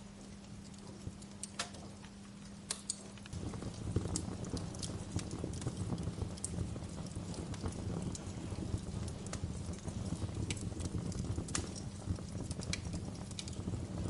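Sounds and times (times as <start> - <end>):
low rumble of burning fire: 0.0 - 14.0
wood fire crackling: 0.0 - 14.0.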